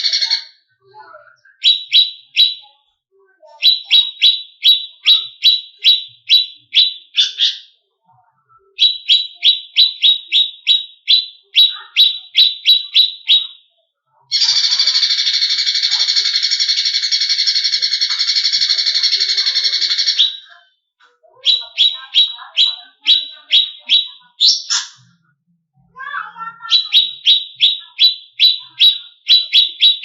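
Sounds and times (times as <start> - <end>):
bird chirping sharply: 1.5 - 2.7, 3.6 - 7.8, 8.8 - 13.6, 14.3 - 20.6, 21.4 - 25.1, 26.4 - 30.0.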